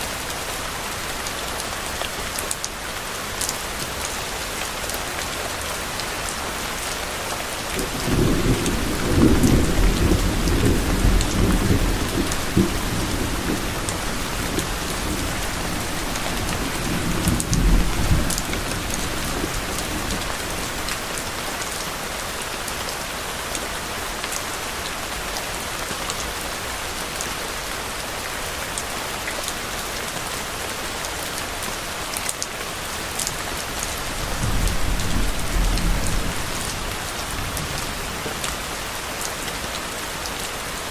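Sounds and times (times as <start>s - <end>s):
steady rain falling: 0.0s - 40.9s
distant thunder rumbling: 7.8s - 21.2s, 34.1s - 38.4s.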